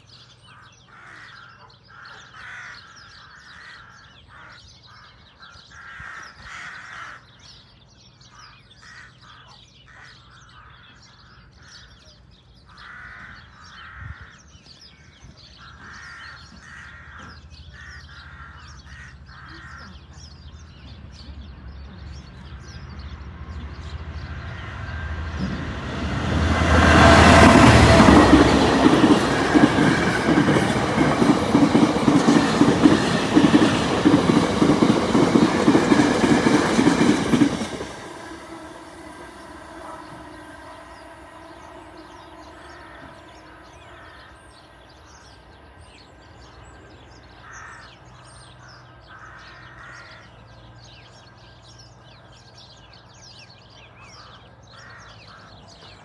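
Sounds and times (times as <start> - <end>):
crows cawing: 0.5 - 7.4, 8.4 - 10.9, 12.7 - 14.4, 15.6 - 20.2, 26.7 - 44.8, 47.4 - 50.4, 54.2 - 55.9
train passing: 20.3 - 52.0.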